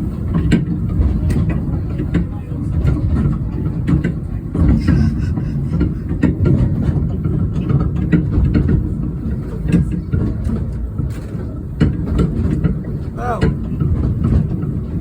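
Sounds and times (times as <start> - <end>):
train rumbling: 3.3 - 9.6.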